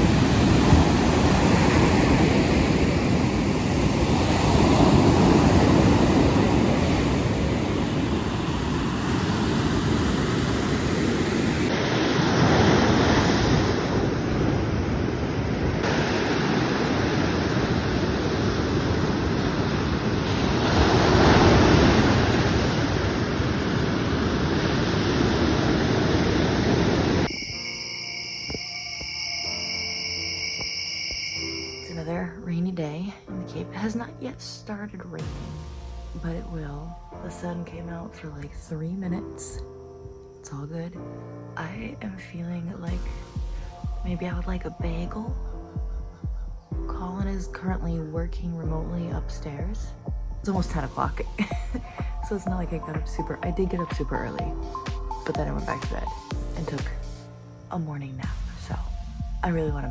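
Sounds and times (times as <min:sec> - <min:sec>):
wind on microphone: 0:00.0 - 0:27.6
ocean surf washing onto beach: 0:00.0 - 0:27.8.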